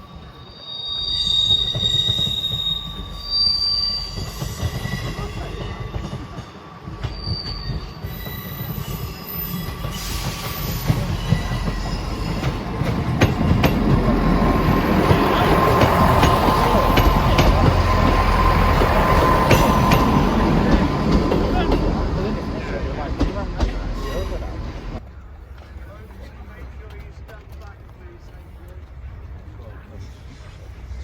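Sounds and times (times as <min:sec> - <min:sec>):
train wheels squealing: 0:00.0 - 0:22.8, 0:23.8 - 0:25.0
rail joint clicks: 0:01.2 - 0:31.0.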